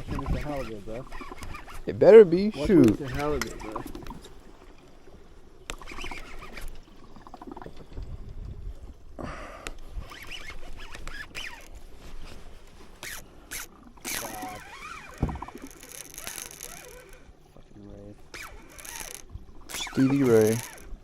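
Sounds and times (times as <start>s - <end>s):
fishing reel cranking: 0.1s - 4.1s, 5.7s - 6.8s, 10.0s - 11.8s, 13.0s - 17.4s, 18.3s - 21.0s.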